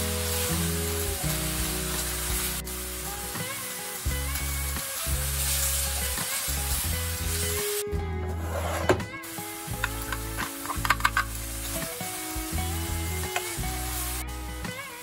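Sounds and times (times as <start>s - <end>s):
filling sizzling in a frying pan: 0.0s - 15.0s
spatula scraping pan: 8.3s - 9.1s.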